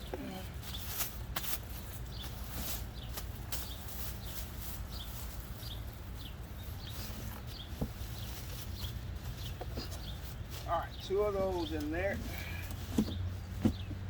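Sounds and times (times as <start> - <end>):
small bird chirping: 1.7 - 12.1.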